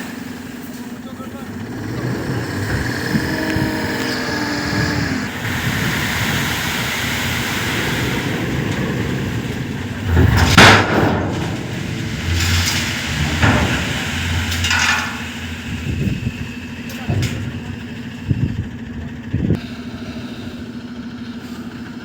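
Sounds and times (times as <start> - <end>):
dump truck running: 0.0 - 22.0
loud bang: 8.0 - 18.9.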